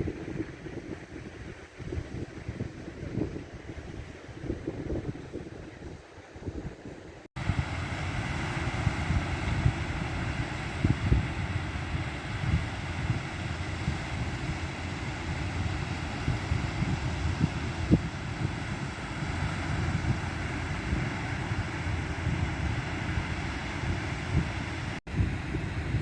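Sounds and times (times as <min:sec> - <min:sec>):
wind buffeting microphone: 0:00.0 - 0:26.0
steady rushing noise: 0:07.4 - 0:26.0.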